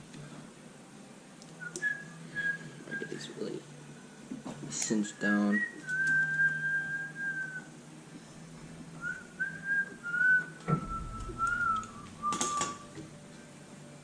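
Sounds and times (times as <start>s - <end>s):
person whistling a tune: 1.6s - 3.3s, 5.5s - 7.7s, 9.0s - 13.0s
dull thump: 10.6s - 11.6s.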